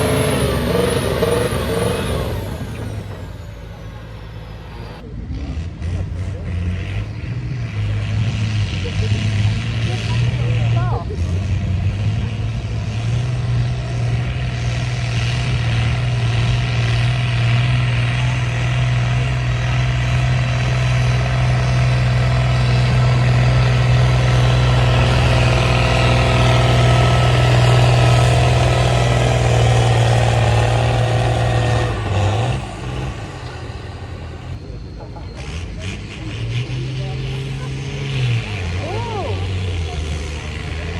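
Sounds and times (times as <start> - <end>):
tractor engine running hard: 0.0 - 40.9.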